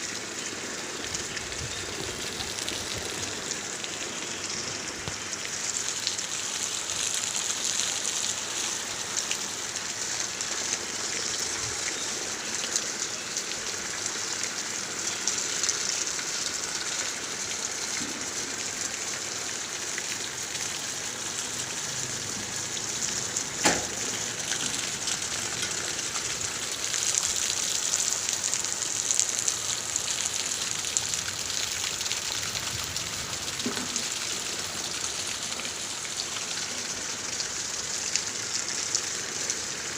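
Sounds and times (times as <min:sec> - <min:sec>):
heavy rain falling: 0:00.0 - 0:39.9
raindrops ticking on surfaces: 0:00.0 - 0:39.9.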